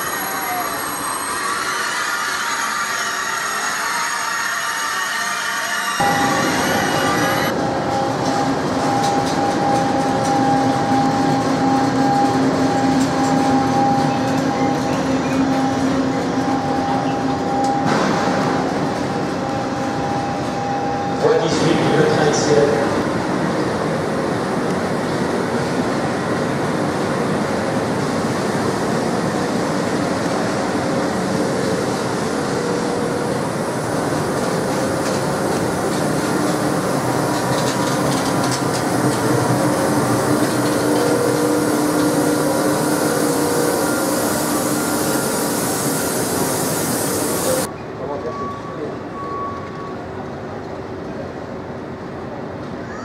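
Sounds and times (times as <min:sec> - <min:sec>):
train rumbling: 0:00.0 - 0:53.0.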